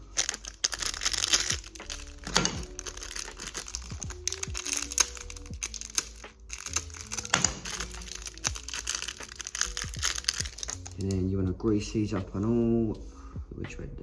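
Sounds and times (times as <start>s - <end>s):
clicking and crinkling of small parts: 0.0s - 11.2s
background music with steady beat: 0.0s - 14.0s.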